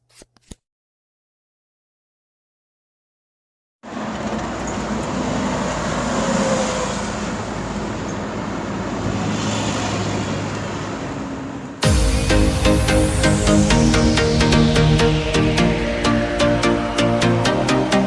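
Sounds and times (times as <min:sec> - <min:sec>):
street traffic rumble: 0:03.9 - 0:11.8.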